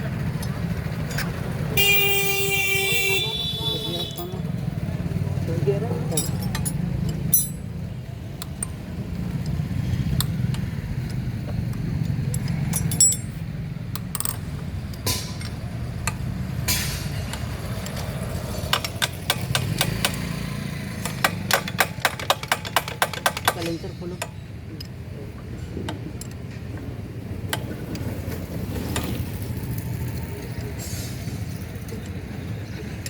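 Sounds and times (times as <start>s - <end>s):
metal tools clinking: 6.0s - 8.8s, 12.2s - 15.7s, 21.0s - 25.1s.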